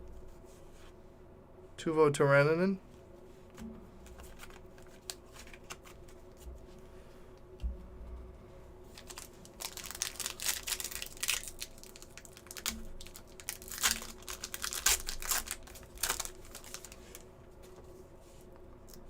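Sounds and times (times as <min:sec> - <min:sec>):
plastic wrapper crinkling: 0:04.0 - 0:06.2, 0:08.9 - 0:17.2.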